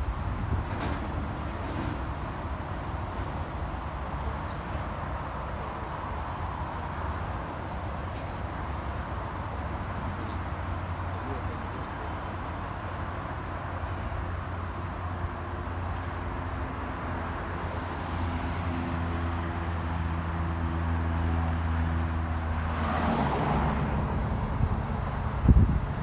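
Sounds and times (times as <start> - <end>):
diesel locomotive engine drone: 0.0 - 26.0.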